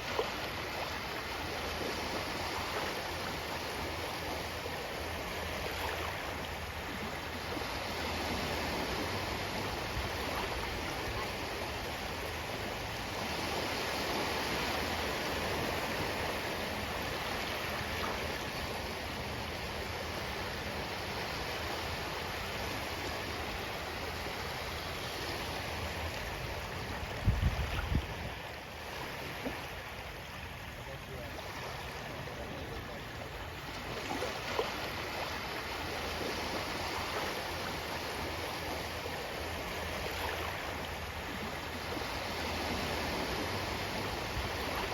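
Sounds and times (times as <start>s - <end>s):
ocean waves washing on shore: 0.0s - 44.9s.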